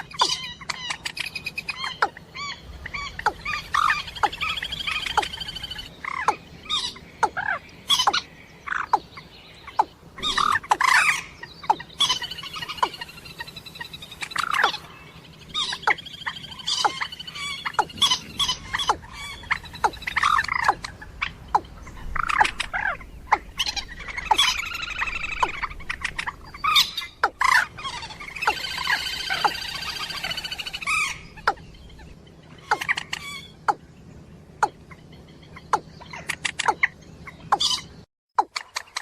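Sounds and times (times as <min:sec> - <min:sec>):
fast rattling bird trills: 0:00.0 - 0:39.0
moorhen calls and clicks: 0:03.2 - 0:09.1, 0:09.7 - 0:14.9, 0:15.6 - 0:27.6, 0:28.4 - 0:31.6, 0:32.6 - 0:33.8, 0:35.6 - 0:37.8.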